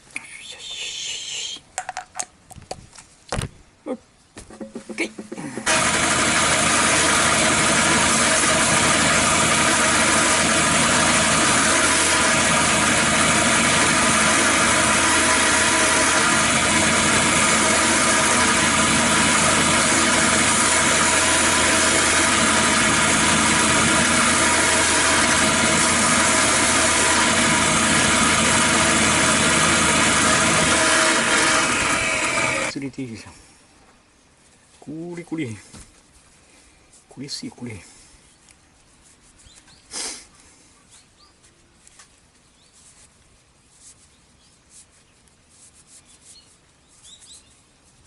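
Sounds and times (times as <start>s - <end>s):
motor running with hiss and hum: 5.5s - 32.7s.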